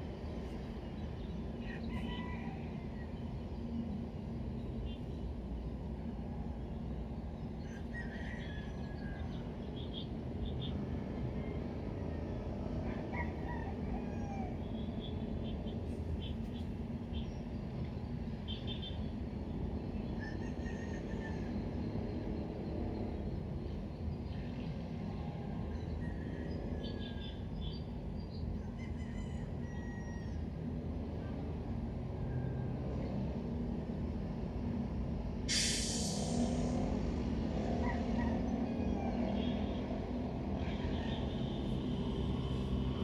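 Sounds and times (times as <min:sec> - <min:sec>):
traffic rumble: 0:00.0 - 0:29.6, 0:30.3 - 0:43.0
sharp hiss: 0:35.5 - 0:36.8.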